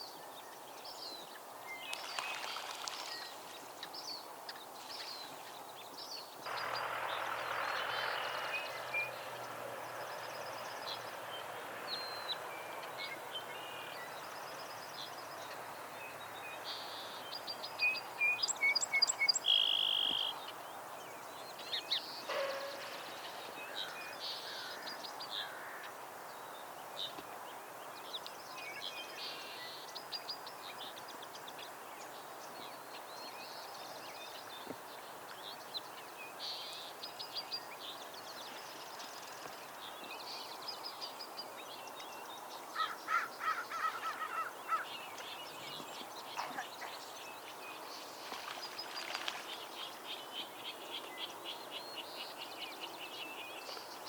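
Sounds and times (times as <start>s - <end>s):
birds trilling and chirping: 6.5s - 20.2s, 21.5s - 25.9s, 42.8s - 51.4s
harsh low bird calls: 22.0s - 25.9s.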